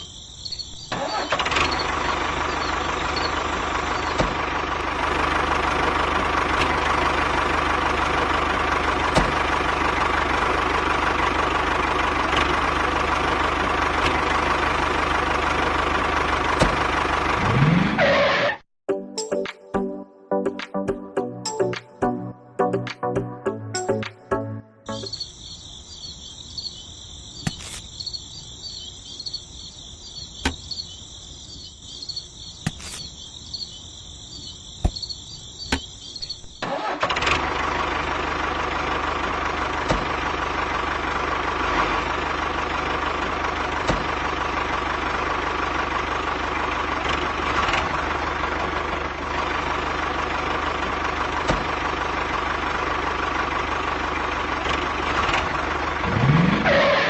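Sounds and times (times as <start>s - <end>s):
crickets chirping: 0.0s - 4.2s, 24.9s - 36.7s.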